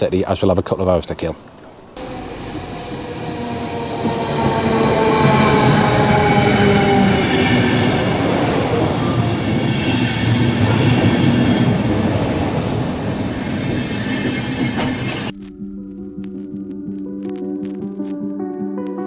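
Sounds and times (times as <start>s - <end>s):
train rumble with engine whine: 1.6s - 15.3s.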